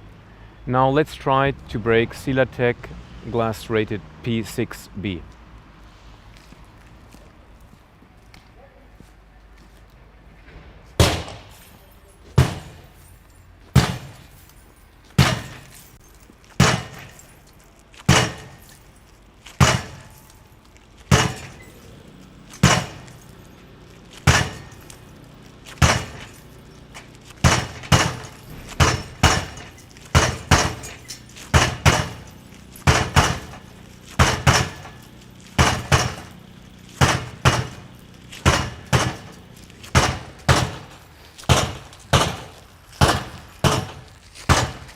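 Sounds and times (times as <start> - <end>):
sledgehammer striking glass: 11.0 - 44.9.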